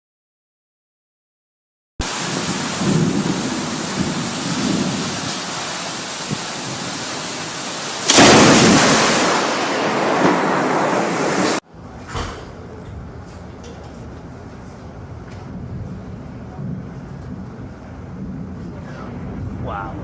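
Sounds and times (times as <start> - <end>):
heavy rain: 2.0 - 11.6
thunderclap rumbling: 2.0 - 11.6, 15.0 - 20.0.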